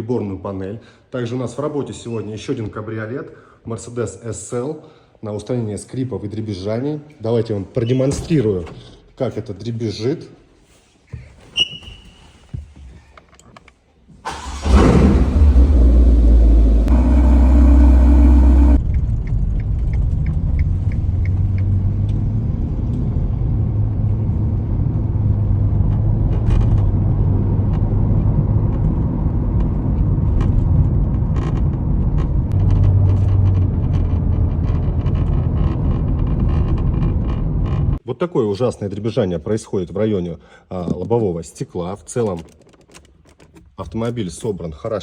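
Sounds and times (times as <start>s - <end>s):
car engine starting and revving: 14.3s - 28.7s, 31.4s - 36.4s.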